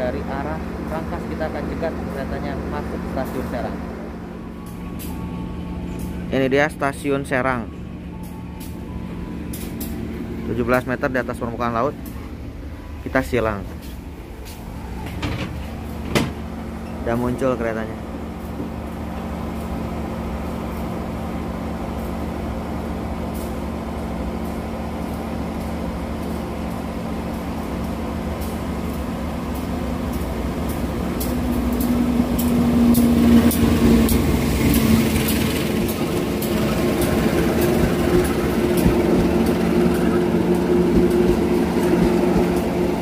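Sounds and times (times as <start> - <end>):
diesel locomotive engine: 0.0 - 43.0
low hum of standing trains: 0.0 - 43.0
wheels clicking over rail joints: 24.4 - 42.9.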